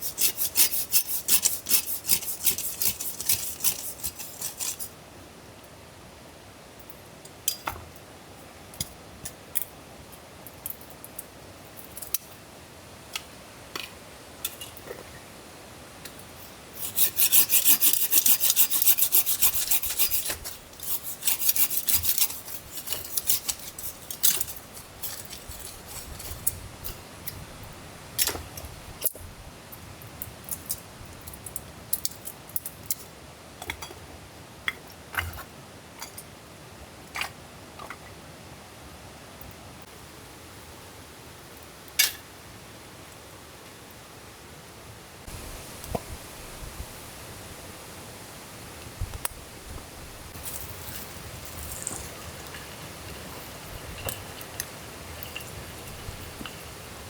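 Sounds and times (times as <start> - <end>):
hand tool rasping on wood: 0.0 - 4.9, 16.8 - 26.6.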